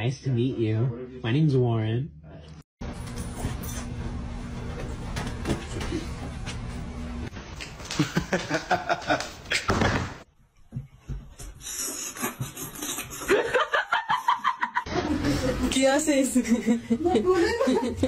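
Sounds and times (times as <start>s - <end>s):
people laughing: 7.9s - 9.6s, 13.2s - 15.7s, 16.4s - 18.0s.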